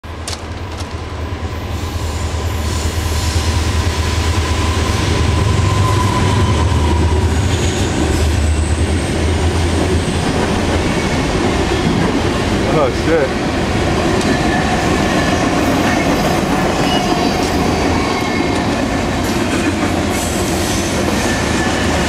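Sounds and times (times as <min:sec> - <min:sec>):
freight train rumbling: 0:00.0 - 0:22.0
train wheel squeal: 0:01.6 - 0:12.1, 0:14.2 - 0:22.0.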